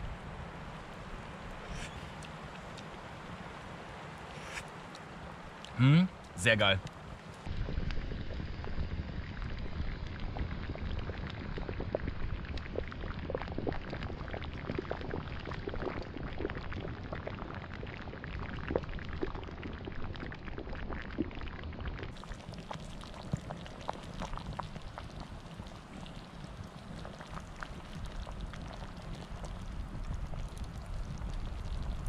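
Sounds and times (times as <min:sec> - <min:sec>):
curry bubbling in a pot: 0:07.0 - 0:32.0.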